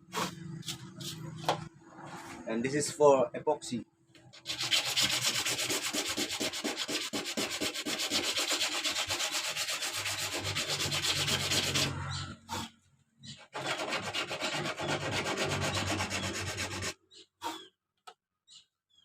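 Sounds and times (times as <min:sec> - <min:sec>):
sandpaper rubbing by hand: 0:00.1 - 0:01.5, 0:04.4 - 0:12.7, 0:13.4 - 0:17.6.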